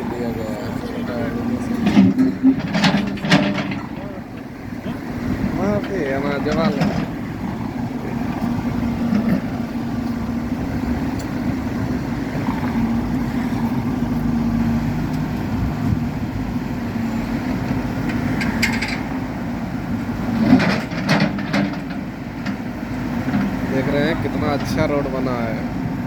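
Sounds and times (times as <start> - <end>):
backhoe diesel engine running: 0.0 - 26.0
short clatter: 1.7 - 4.5.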